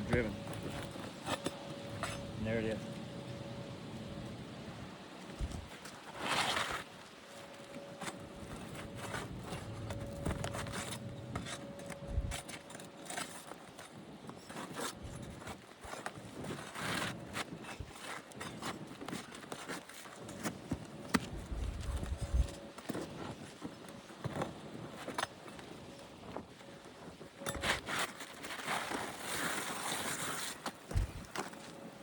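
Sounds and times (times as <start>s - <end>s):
tool scraping roof shingles: 27.4s - 31.7s.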